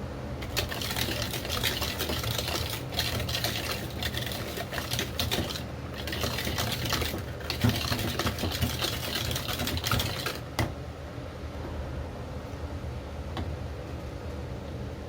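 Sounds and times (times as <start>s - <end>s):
rapid clicking and clattering: 0.4s - 10.4s.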